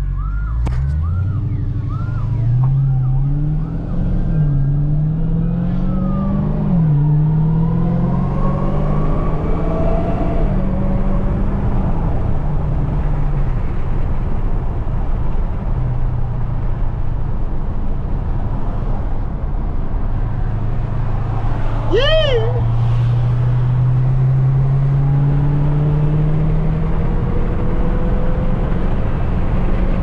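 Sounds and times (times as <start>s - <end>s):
car engine accelerating: 0.0s - 13.9s, 20.9s - 30.0s.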